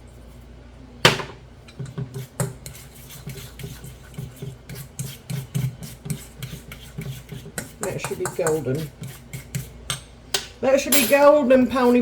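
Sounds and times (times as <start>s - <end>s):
kitchenware clattering: 1.0s - 2.1s, 9.9s - 12.0s
utensil scraping in bowl: 1.7s - 10.0s, 11.2s - 12.0s.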